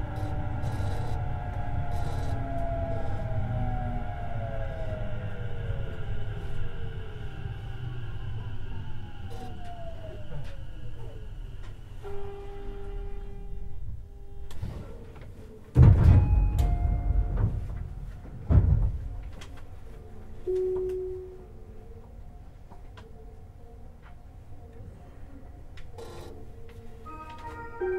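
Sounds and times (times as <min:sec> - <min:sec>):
train motor whine: 0:00.0 - 0:14.8, 0:16.1 - 0:19.7
loud thuds with noise rush: 0:15.8 - 0:19.3
held tone: 0:20.5 - 0:21.5.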